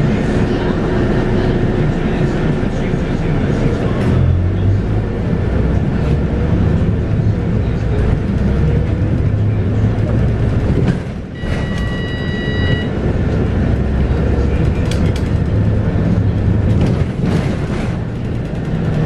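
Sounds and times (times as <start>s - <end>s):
bus diesel engine running: 0.0s - 19.0s
high beep: 11.4s - 13.0s.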